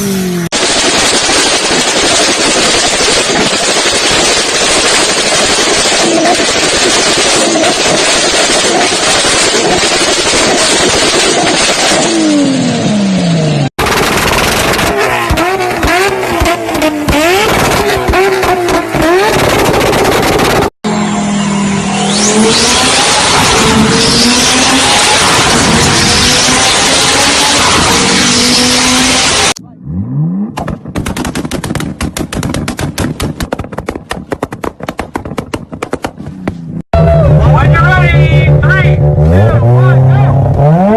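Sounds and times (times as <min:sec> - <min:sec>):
exhaust pops and bangs: 0:00.5 - 0:12.2, 0:13.8 - 0:20.7, 0:30.5 - 0:36.8
engine revving in blips: 0:03.4 - 0:31.9, 0:36.5 - 0:40.9.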